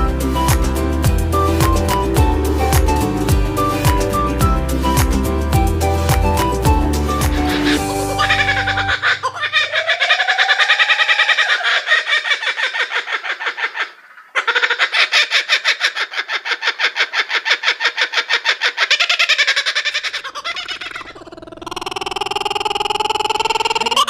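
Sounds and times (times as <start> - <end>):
bird calling repeated notes: 0.0 - 11.9.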